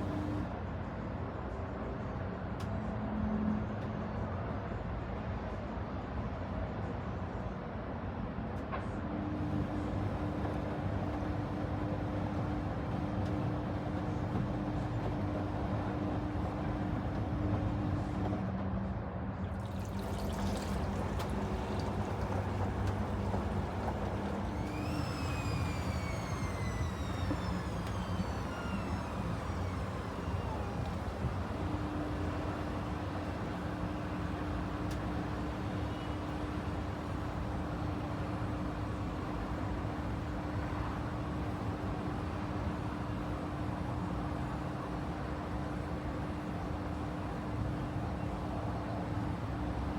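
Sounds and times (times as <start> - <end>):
motor whine: 0.0 - 0.5, 9.2 - 18.4, 19.7 - 49.9
washing machine running: 0.0 - 0.5, 9.2 - 18.5, 19.5 - 49.9
swish of water: 19.6 - 33.6.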